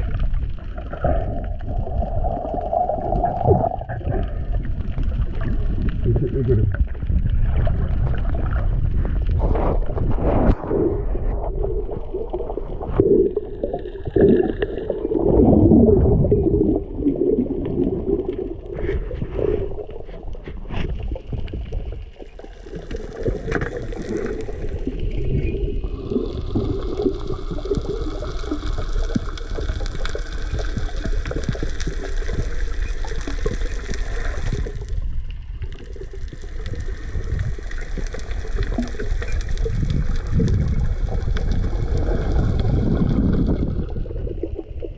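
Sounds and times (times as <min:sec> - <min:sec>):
steady low rumble: 0:00.0 - 0:27.5
muffled water sloshing and gurgling: 0:00.0 - 0:44.9.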